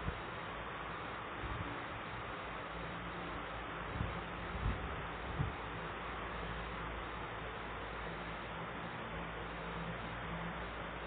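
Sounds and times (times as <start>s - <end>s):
steady hiss-like noise: 0.0s - 11.0s.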